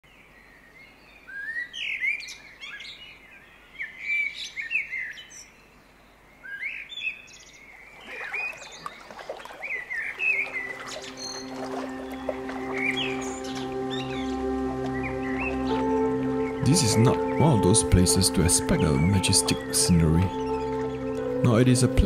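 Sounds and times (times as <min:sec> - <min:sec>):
wild birds chirping and whistling: 0:00.1 - 0:17.9, 0:18.5 - 0:21.4.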